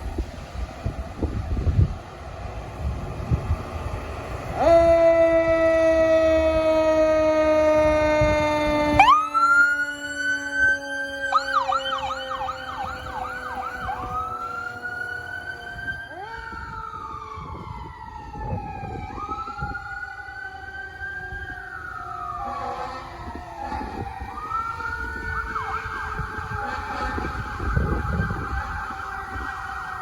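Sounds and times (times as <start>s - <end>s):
fire engine siren wailing and yelping: 2.8s - 30.0s
fire engine horn blast: 4.6s - 16.7s, 22.2s - 24.4s, 25.5s - 29.5s.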